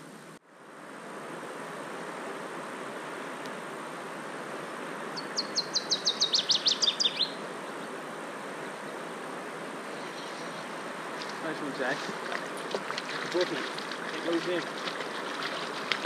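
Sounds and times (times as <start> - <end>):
steady background hiss: 0.0 - 16.0
songbird trill: 5.2 - 8.0, 9.9 - 11.4.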